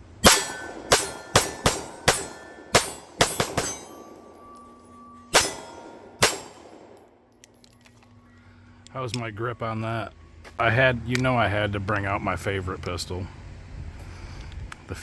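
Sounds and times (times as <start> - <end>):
pistol shots with metallic ring: 0.0 - 7.2.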